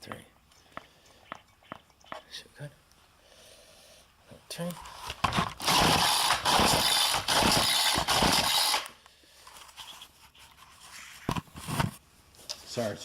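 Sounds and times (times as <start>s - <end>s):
recoil starter rasping: 5.3s - 8.9s.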